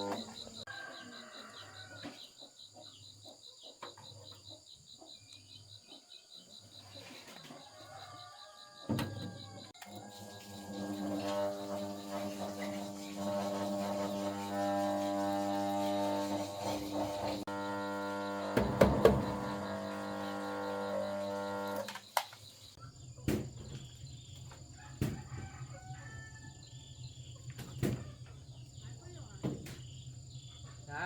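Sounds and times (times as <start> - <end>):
sharp knocks: 18.5 - 19.4.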